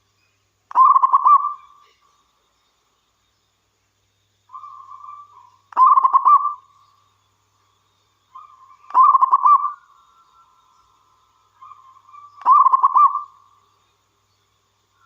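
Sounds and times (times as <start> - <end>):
dove cooing: 0.7 - 1.7, 4.6 - 6.6, 8.4 - 9.8, 11.6 - 13.3.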